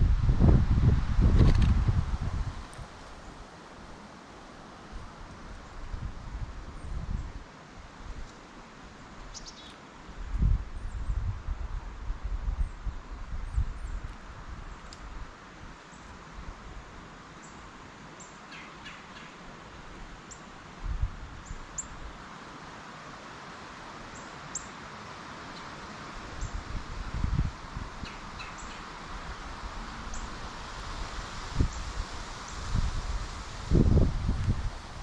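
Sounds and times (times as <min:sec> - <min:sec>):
songbirds chirping: 0:09.0 - 0:09.9, 0:17.4 - 0:19.5, 0:28.0 - 0:30.4
steady hiss: 0:14.1 - 0:35.0.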